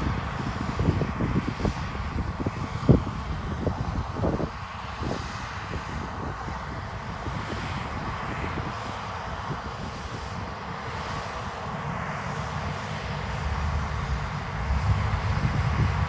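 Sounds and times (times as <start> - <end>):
diesel engine rumbling: 12.6 - 16.0.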